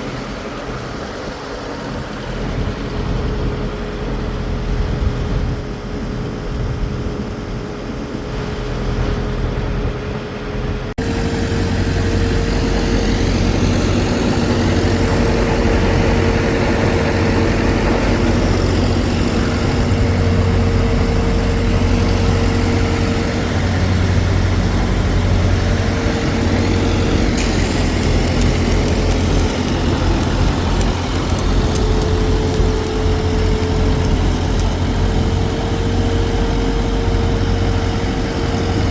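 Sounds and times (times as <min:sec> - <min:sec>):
heavy engine humming: 0:00.0 - 0:38.9.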